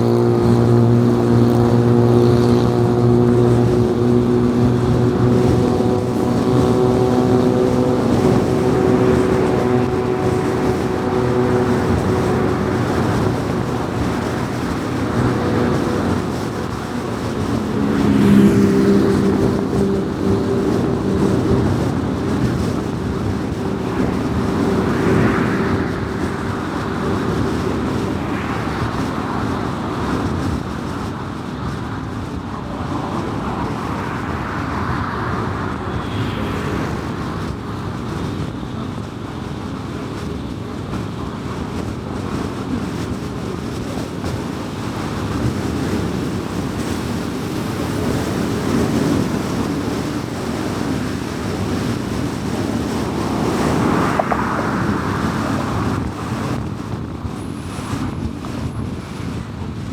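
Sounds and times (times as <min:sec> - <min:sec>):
steady hum: 0:00.0 - 0:29.4
car engine: 0:00.0 - 0:31.4, 0:32.1 - 0:39.3, 0:43.1 - 0:58.4
tyre and road noise: 0:00.0 - 0:59.9.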